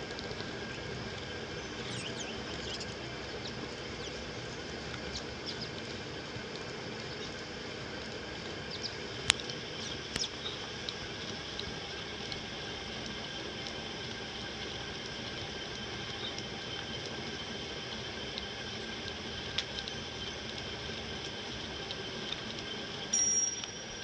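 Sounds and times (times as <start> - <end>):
steady background hum: 0.0 - 24.0
small birds chirping: 0.7 - 4.3, 5.0 - 5.8.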